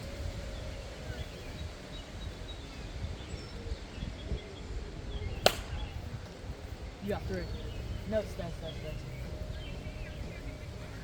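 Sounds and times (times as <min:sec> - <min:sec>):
faint distant voices or chirps: 0:00.0 - 0:11.0
sharp crack: 0:05.4 - 0:06.3.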